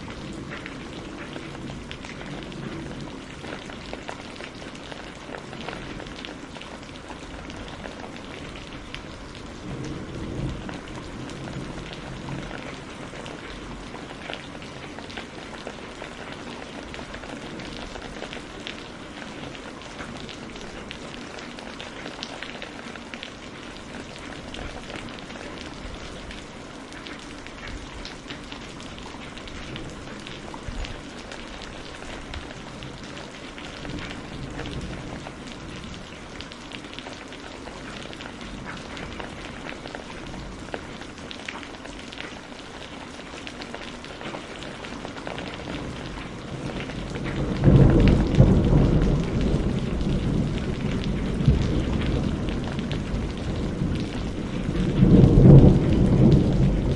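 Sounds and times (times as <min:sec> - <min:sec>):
steady rain falling: 0:00.0 - 0:56.9
thunder rumble: 0:45.6 - 0:56.9.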